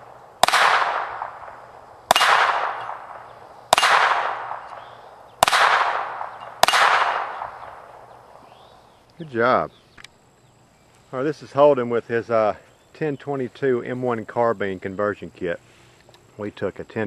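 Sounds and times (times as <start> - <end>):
pistol gunshots with echo: 0.0 - 8.3.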